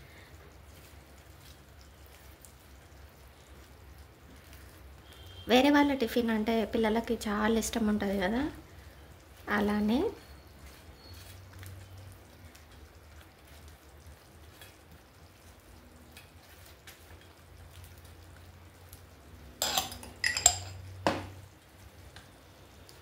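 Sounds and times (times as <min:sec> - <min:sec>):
metal dishes clanking: 0:19.6 - 0:20.8.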